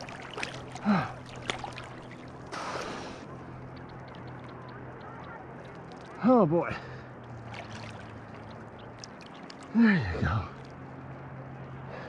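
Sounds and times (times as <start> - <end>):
loud splash: 0.0 - 3.0, 7.4 - 8.2
water lapping and splashing: 0.0 - 12.0.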